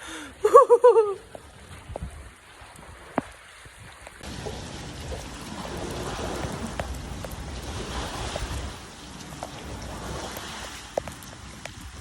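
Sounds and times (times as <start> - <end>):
heavy rain hissing: 4.2 - 12.0.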